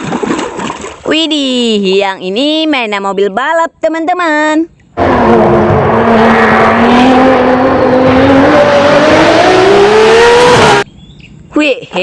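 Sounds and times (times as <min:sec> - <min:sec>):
racing car engine accelerating: 0:05.0 - 0:10.8.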